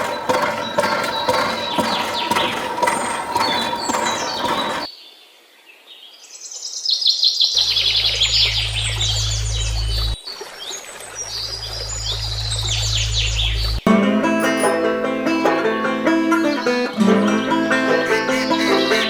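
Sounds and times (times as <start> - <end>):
small birds chirping: 0.0 - 5.2, 5.9 - 13.9, 16.4 - 19.0
low steady hum: 7.6 - 10.2, 11.0 - 18.4.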